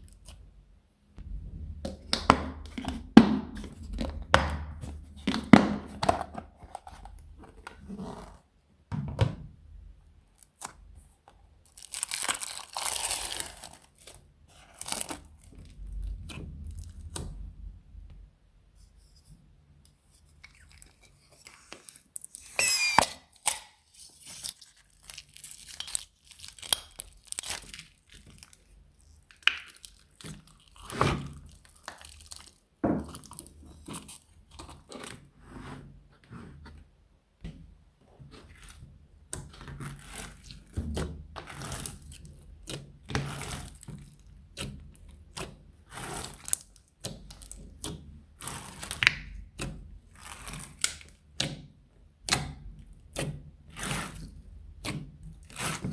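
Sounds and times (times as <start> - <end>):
slime crackling and popping: 11.7 - 15.8, 24.4 - 34.2, 39.5 - 51.2.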